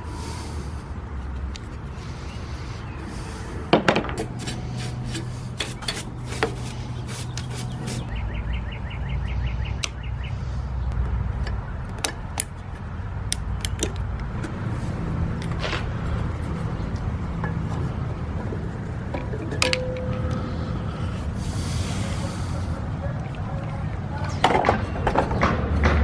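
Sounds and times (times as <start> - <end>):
steady low hum: 0.0 - 25.8
tools clicking and knocking on metal: 11.4 - 14.6.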